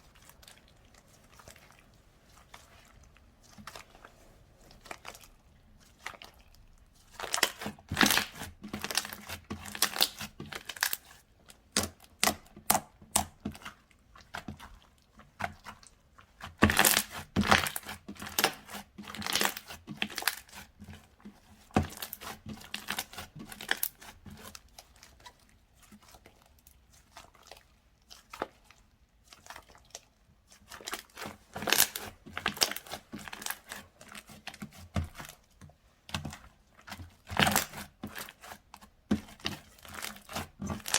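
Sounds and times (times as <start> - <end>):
slime crackling and popping: 7.2 - 13.7, 16.5 - 20.6, 30.6 - 33.7, 39.3 - 40.9.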